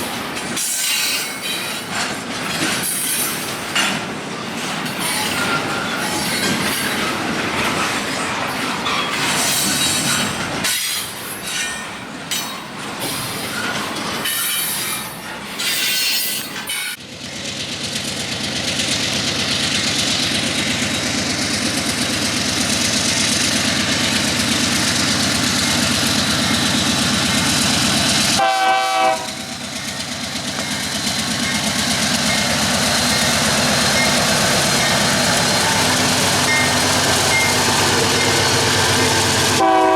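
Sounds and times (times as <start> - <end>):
train wheels clattering and squealing: 0.0 - 28.4, 29.2 - 39.9
train horn: 28.4 - 29.6, 39.0 - 39.9.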